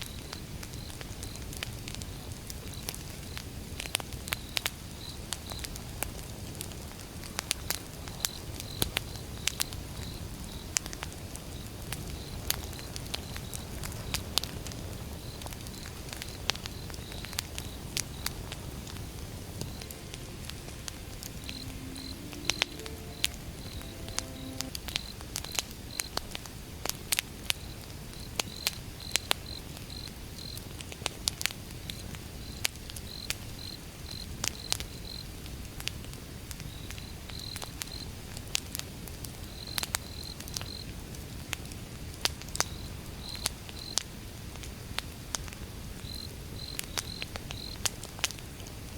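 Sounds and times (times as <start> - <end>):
campfire crackling and popping: 10.8 - 20.3
cricket chirping: 19.6 - 25.2.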